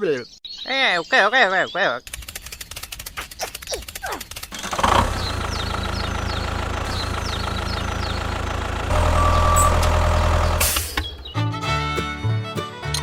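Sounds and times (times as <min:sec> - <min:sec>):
vehicle engine idling: 0:04.5 - 0:12.0.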